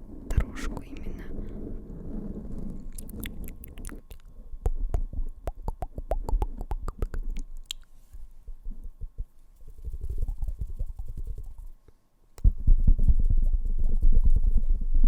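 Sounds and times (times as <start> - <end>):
mouth clicks: 2.8 - 7.9
fingertips tapping on microphone: 3.0 - 7.9.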